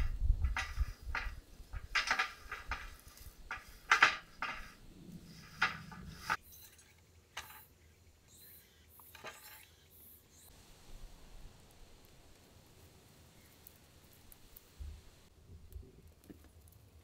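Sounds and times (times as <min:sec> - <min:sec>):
wire basket clinking: 0:00.0 - 0:06.4.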